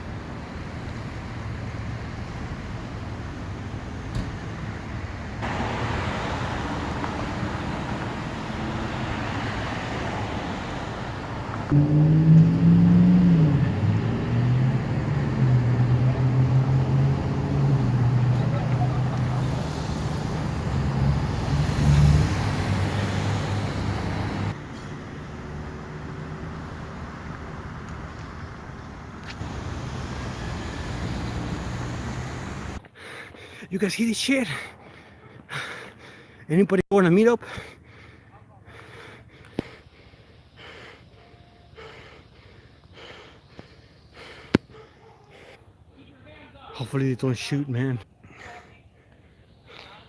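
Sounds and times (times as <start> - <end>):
vehicle engine humming: 0.0 - 32.9
road traffic noise: 0.0 - 50.0.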